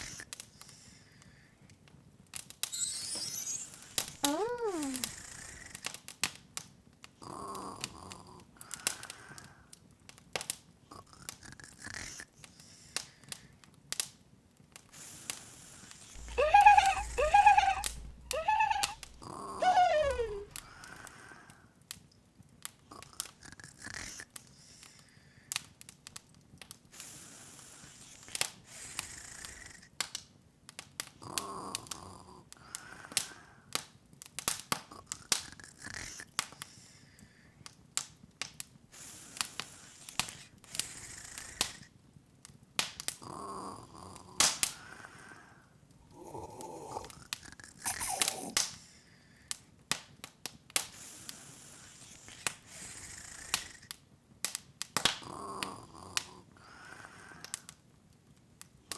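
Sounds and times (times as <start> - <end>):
small creature squeaking: 2.7 - 5.1, 16.2 - 20.7.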